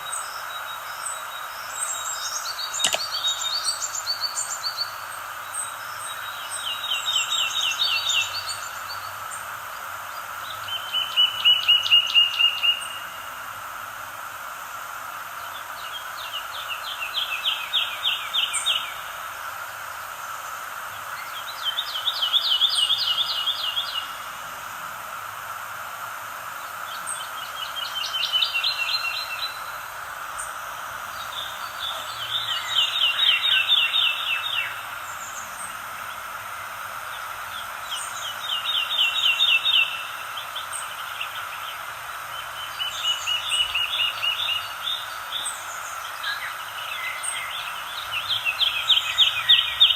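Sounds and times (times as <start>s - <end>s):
outdoor ambience hiss: 0.0s - 49.9s
songbird trilling: 0.1s - 5.0s, 31.1s - 35.8s.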